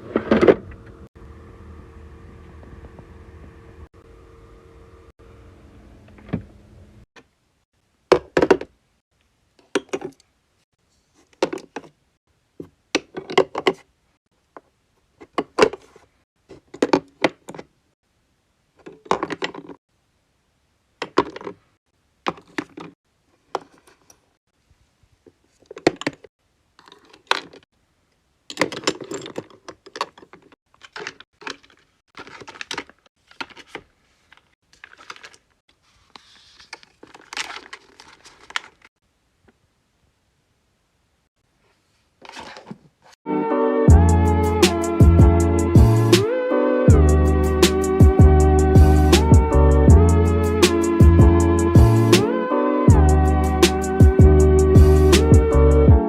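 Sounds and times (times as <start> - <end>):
bottles and jars clacking: 28.5 - 33.7.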